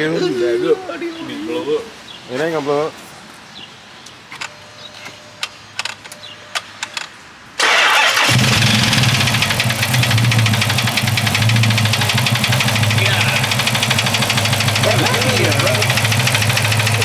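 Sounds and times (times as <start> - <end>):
engine starting and idling: 7.6 - 17.0
rapid ticking engine knock: 8.2 - 17.0.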